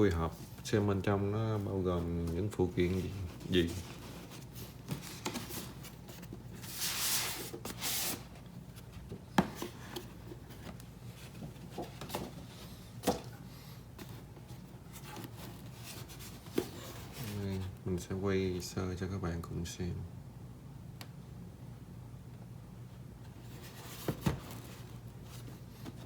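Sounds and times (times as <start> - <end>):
packaging sliding and rubbing: 2.7 - 8.8.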